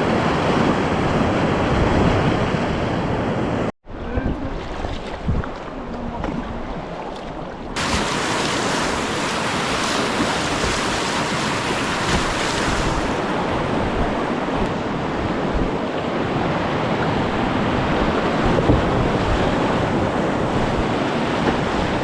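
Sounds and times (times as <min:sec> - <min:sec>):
wind buffeting microphone: 0:00.0 - 0:07.0, 0:07.7 - 0:22.0
river rapids rushing: 0:07.8 - 0:13.7.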